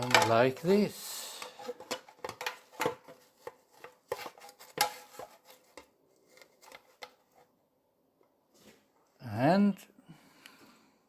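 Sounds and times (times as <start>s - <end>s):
metal parts knocking and clicking: 0.0s - 0.4s.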